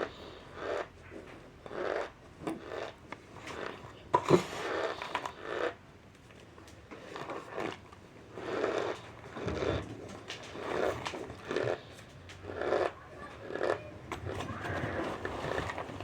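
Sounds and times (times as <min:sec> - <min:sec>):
person chewing and crunching: 0:10.6 - 0:13.8.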